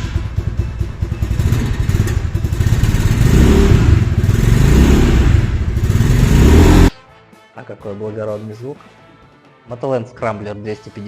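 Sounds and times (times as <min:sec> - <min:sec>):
motorcycle engine idling and revving: 0:00.0 - 0:07.0.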